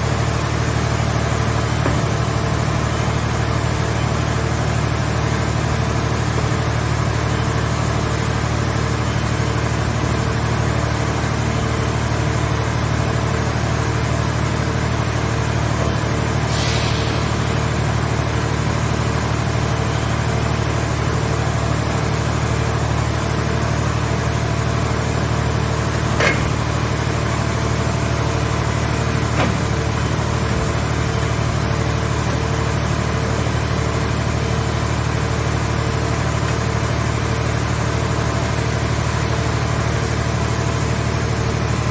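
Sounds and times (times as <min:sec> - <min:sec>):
diesel engine running: 0:00.0 - 0:41.9
short hiss: 0:16.4 - 0:17.8.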